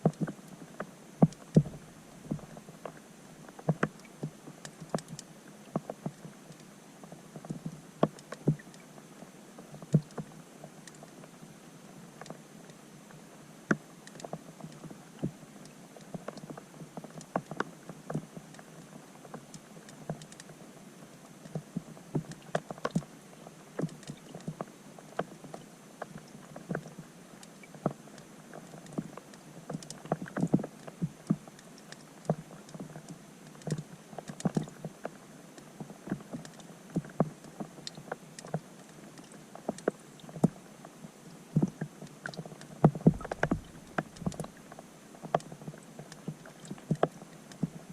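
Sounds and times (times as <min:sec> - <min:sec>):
faint steady hiss: 0:00.0 - 0:47.9
raindrops plinking underwater: 0:41.5 - 0:47.9.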